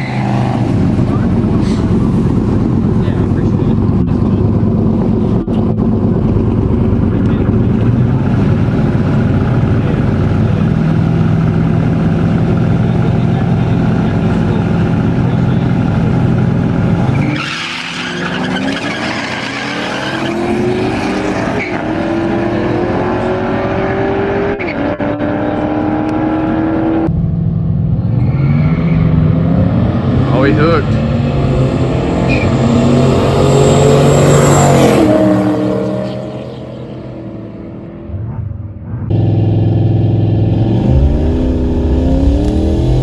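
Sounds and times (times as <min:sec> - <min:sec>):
drag car engine accelerating: 0:00.0 - 0:43.0.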